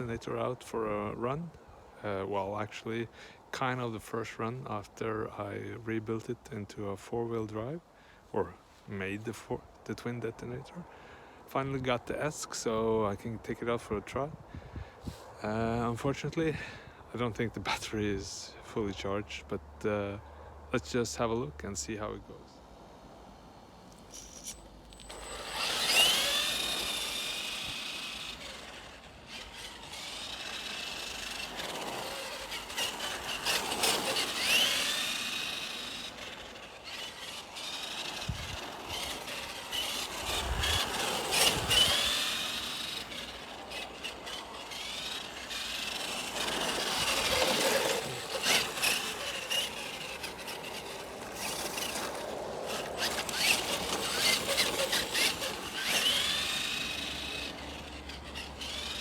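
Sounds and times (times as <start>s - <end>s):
electric motors whining: 23.7s - 59.0s
rough scraping noise: 23.9s - 59.0s.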